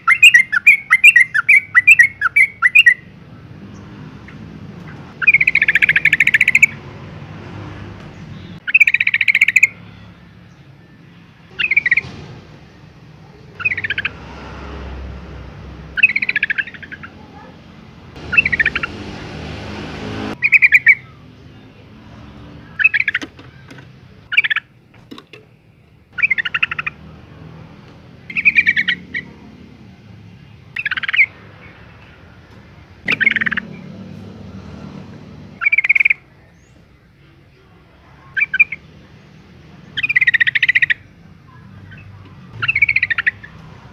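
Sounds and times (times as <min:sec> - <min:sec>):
bird chattering call: 0:05.2 - 0:06.8, 0:08.4 - 0:09.8, 0:11.5 - 0:12.1, 0:13.4 - 0:14.2, 0:16.0 - 0:17.5, 0:18.2 - 0:19.2, 0:22.7 - 0:24.7, 0:26.2 - 0:27.0, 0:28.3 - 0:29.4, 0:30.8 - 0:31.4, 0:33.1 - 0:33.8, 0:35.6 - 0:36.2, 0:40.0 - 0:41.1, 0:41.8 - 0:43.6.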